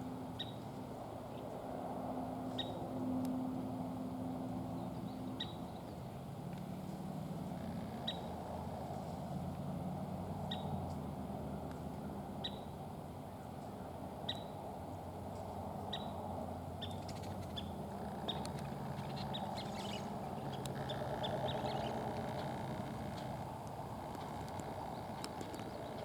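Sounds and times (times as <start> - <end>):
low background rumble: 16.4 - 26.0
bird chirping: 16.8 - 23.4, 24.1 - 26.0.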